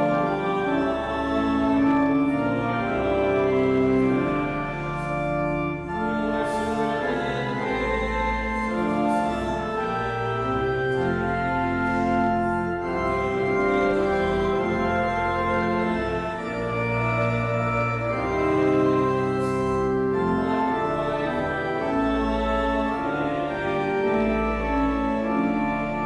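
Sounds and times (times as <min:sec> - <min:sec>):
church organ playing a hymn: 0:00.0 - 0:26.0.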